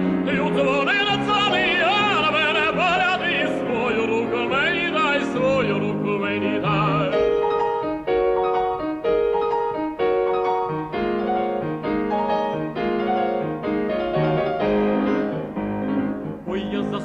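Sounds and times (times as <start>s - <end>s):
piano chords: 0.0s - 17.0s
tenor voice singing: 0.2s - 7.3s, 16.4s - 17.0s.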